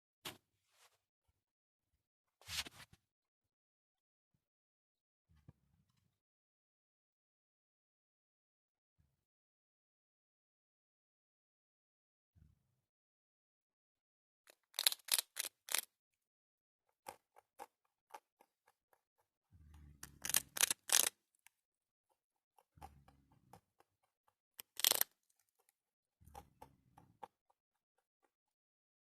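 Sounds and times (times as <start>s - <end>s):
rabbit crunching dry bread: 14.5s - 15.9s, 19.8s - 21.2s, 24.6s - 25.7s.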